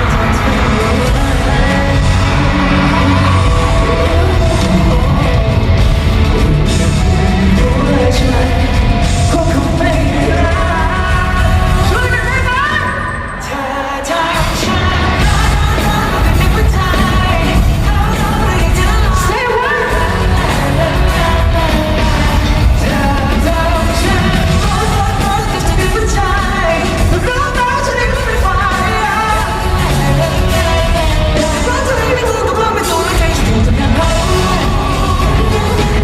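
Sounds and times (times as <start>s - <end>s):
live pop band with singer: 0.0s - 36.0s.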